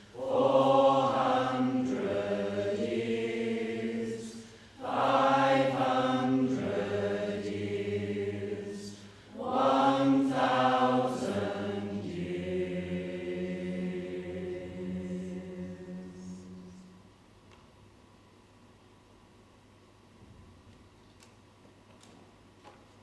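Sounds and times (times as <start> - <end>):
choir singing chant-like notes: 0.0 - 17.2.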